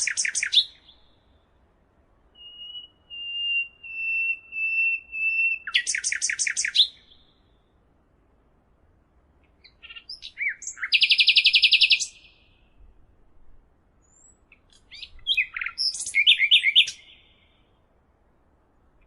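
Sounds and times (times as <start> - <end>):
songbird chirping and whistling: 0.0 - 1.2, 2.3 - 7.7, 9.6 - 12.8, 14.0 - 17.7.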